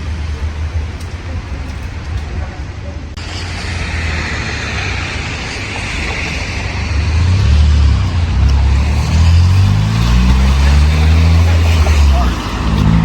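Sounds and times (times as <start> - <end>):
vehicle engine rumble: 0.0 - 13.0
passing cars hissing: 3.2 - 13.0.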